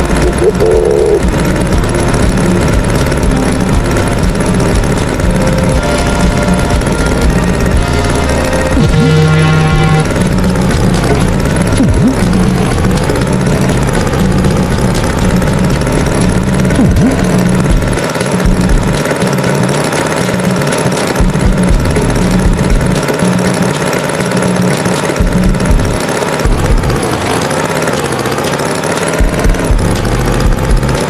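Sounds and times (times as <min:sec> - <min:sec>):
cartoon tractor engine chugging: 0:00.0 - 0:31.0.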